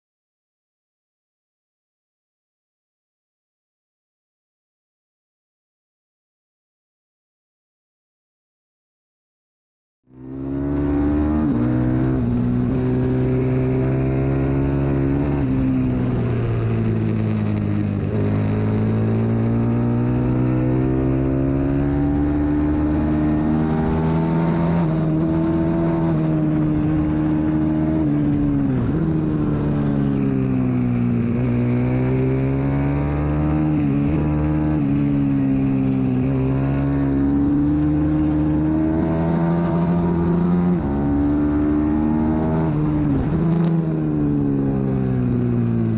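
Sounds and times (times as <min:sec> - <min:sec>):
motorbike engine revving: 0:10.2 - 0:45.9.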